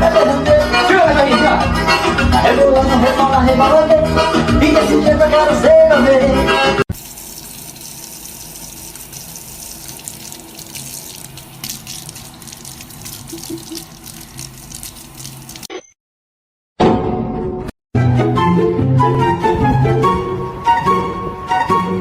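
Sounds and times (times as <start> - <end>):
running water rushing: 6.9 - 15.7.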